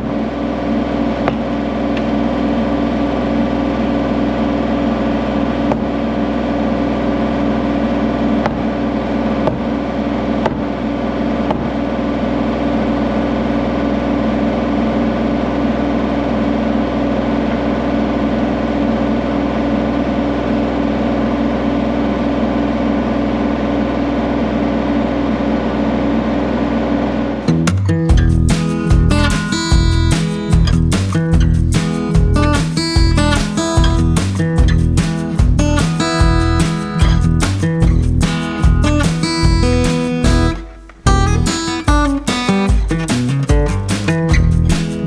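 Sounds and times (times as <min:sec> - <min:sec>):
engine running steadily: 0:00.0 - 0:45.0.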